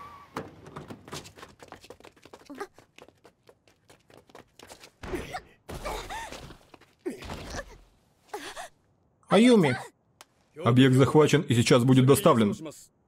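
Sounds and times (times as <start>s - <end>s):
quick footsteps: 0.5s - 5.0s, 6.1s - 7.1s.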